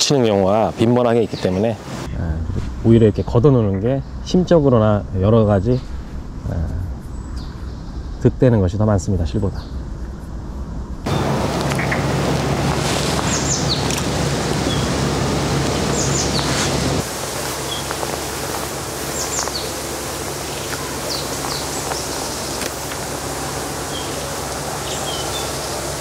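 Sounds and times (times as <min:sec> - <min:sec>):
steady outdoor hiss: 0:00.0 - 0:26.0
bird with high falling call: 0:19.1 - 0:19.8, 0:20.5 - 0:22.7, 0:23.8 - 0:25.9.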